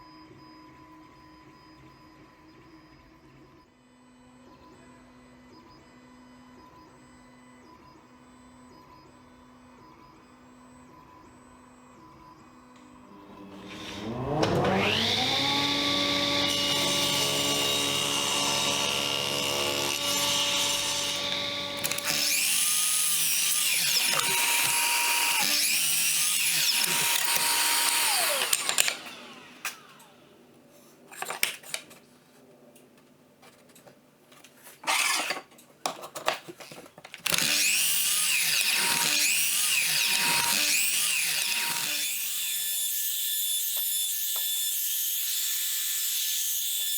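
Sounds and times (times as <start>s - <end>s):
electric power tool motor: 13.1s - 30.3s, 34.8s - 35.5s, 36.6s - 46.9s.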